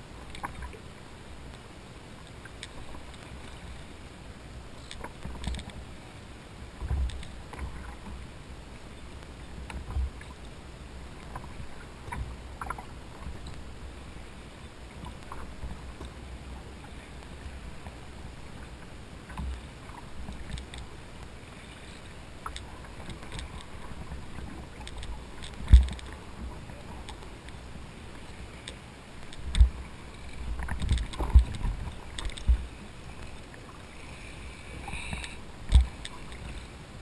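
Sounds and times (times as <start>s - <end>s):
light clicks and knocks on hull: 0.0s - 37.0s.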